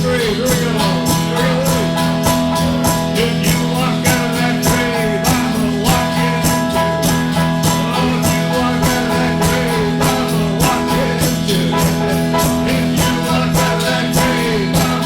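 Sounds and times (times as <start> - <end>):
strummed guitar: 0.0 - 15.0
faint singing: 7.8 - 15.0.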